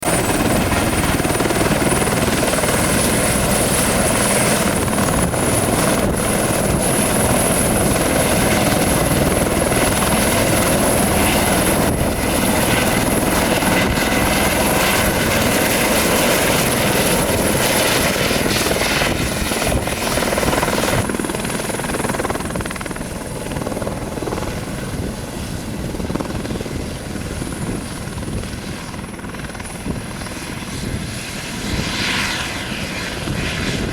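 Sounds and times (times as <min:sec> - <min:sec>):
helicopter rotor noise: 0:00.0 - 0:33.9
turbine engine whine: 0:00.0 - 0:33.9.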